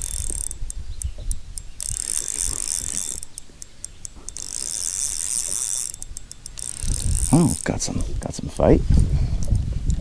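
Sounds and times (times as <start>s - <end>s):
fishing reel clicks: 0.0s - 7.9s
fishing reel ratcheting: 0.0s - 8.0s.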